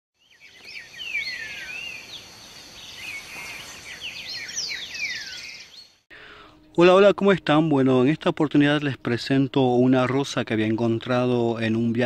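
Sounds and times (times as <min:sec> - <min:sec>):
birds singing and chirping: 0:00.2 - 0:06.0
steady hiss: 0:02.4 - 0:04.2.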